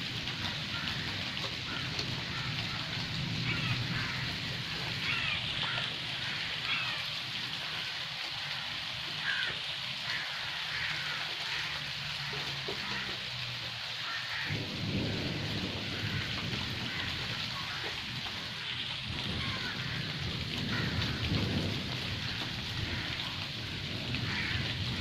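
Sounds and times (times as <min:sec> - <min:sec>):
rain falling on forest: 0:00.0 - 0:25.0.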